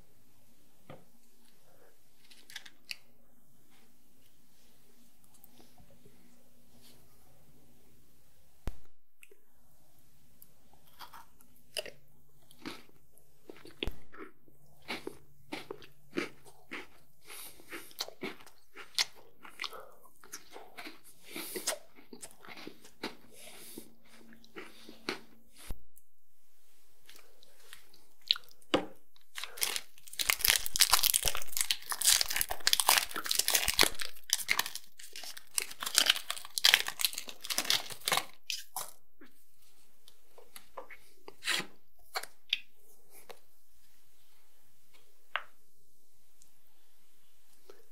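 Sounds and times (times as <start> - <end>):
chocolate chewing with mouth clicks: 10.7 - 25.4, 27.1 - 39.3
dense crackling and crunching: 29.3 - 38.9.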